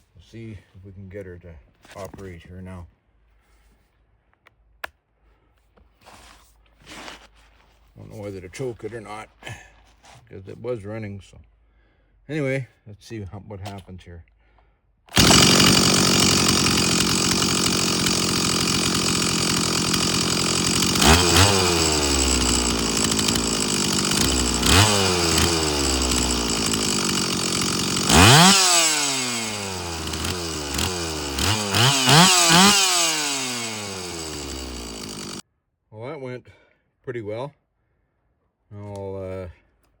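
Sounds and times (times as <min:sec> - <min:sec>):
chainsaw engine revving: 0:15.1 - 0:35.4.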